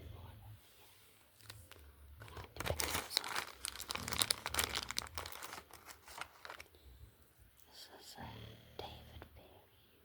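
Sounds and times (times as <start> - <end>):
packaging crinkling and tearing: 1.4 - 6.8.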